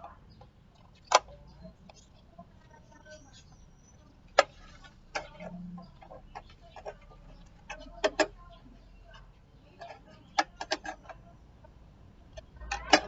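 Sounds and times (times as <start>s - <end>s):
fan parts clicking and knocking: 4.1s - 13.0s.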